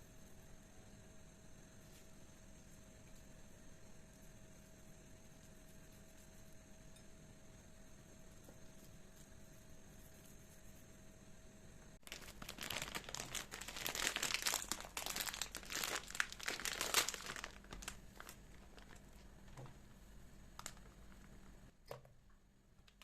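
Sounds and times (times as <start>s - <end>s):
packaging crinkling: 12.0s - 19.8s, 20.5s - 21.4s.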